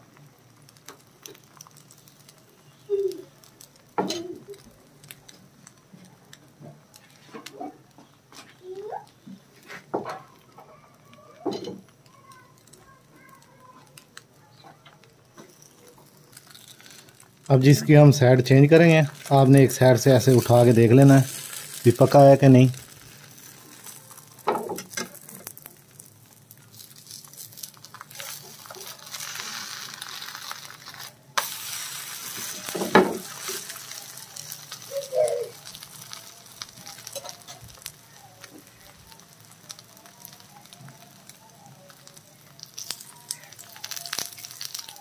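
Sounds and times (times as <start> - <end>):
food sizzling in a pan: 0.0 - 45.0.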